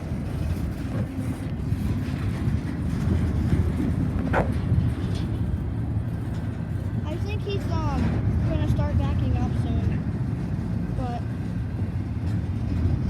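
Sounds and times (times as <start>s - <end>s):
freight train rumbling: 0.0s - 13.0s.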